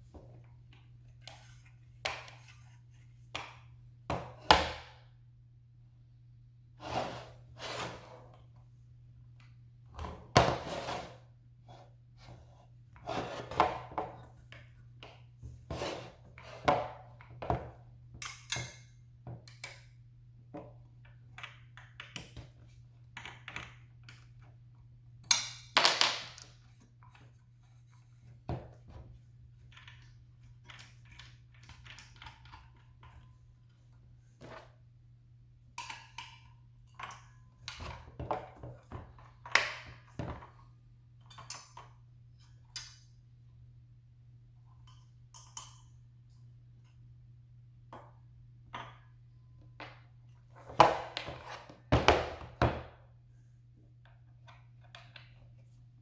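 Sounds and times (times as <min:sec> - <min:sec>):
objects knocking and clattering: 0:49.8 - 0:53.0.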